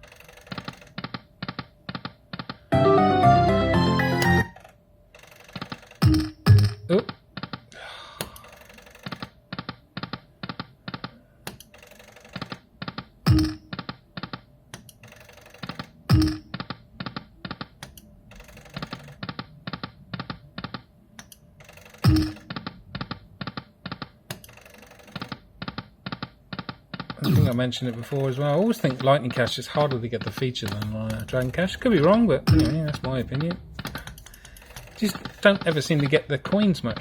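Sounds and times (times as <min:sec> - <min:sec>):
slot machine reel clicks: 0:00.0 - 0:01.0, 0:02.7 - 0:06.8, 0:13.3 - 0:13.7, 0:15.0 - 0:16.6, 0:18.3 - 0:19.2, 0:21.6 - 0:22.6, 0:24.3 - 0:25.3, 0:27.3 - 0:36.2.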